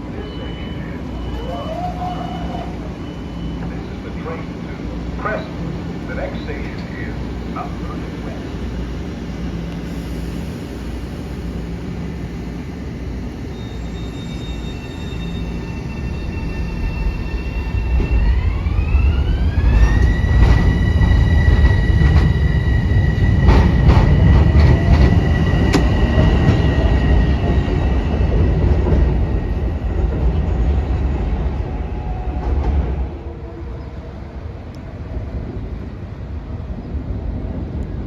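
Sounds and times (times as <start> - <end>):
train propulsion whine: 0.0 - 38.0
train rumble: 0.0 - 38.0.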